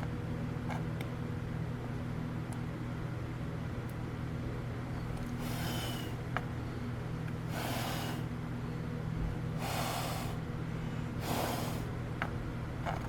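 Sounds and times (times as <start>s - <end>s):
puffs of breath: 5.4s - 6.2s, 7.5s - 8.3s, 9.6s - 11.9s.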